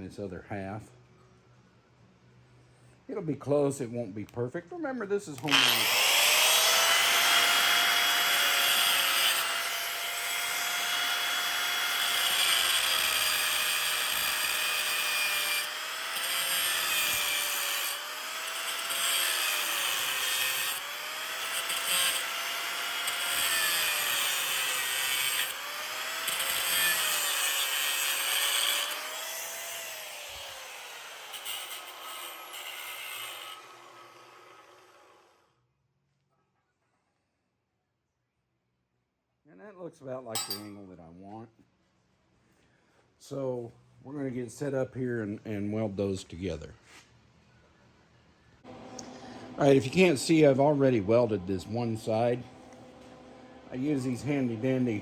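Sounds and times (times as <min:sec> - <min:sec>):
power tool cutting metal: 0:05.4 - 0:35.5, 0:40.4 - 0:40.7, 0:48.7 - 0:53.1, 0:53.7 - 0:55.0.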